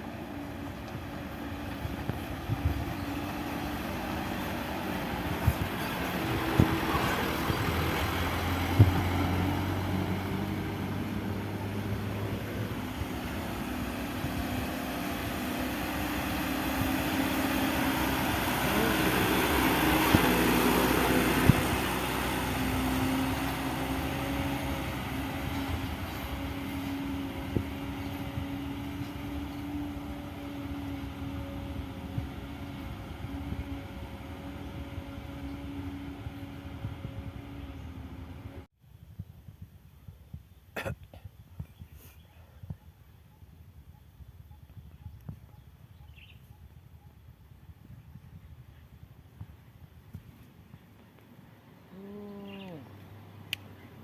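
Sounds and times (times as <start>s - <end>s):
truck engine labouring: 0.0s - 38.7s.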